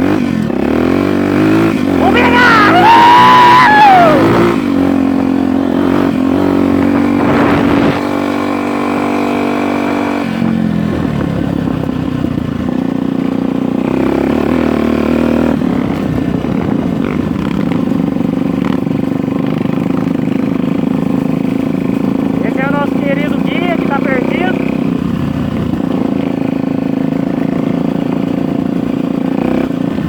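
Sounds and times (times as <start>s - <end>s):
off-road motorcycle engine: 0.0s - 30.0s.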